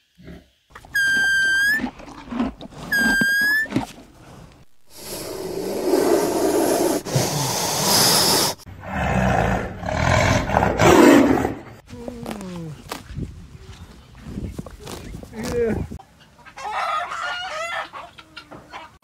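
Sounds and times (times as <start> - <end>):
farm animal whistle-like call: 0.9 - 1.9, 2.9 - 3.8.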